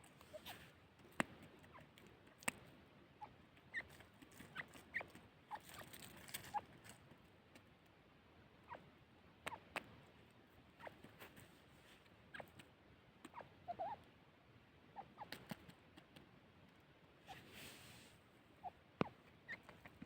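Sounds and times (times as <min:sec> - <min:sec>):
partridge squeaky chirps: 0:18.6 - 0:20.0.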